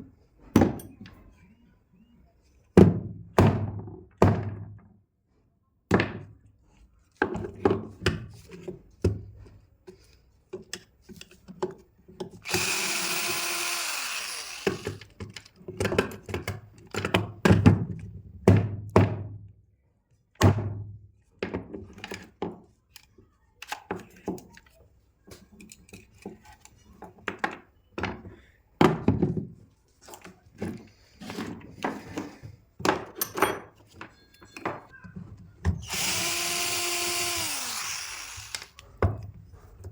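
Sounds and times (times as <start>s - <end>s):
drill motor running: 12.4s - 15.1s, 35.8s - 38.8s
tools knocking on metal parts: 32.1s - 34.9s.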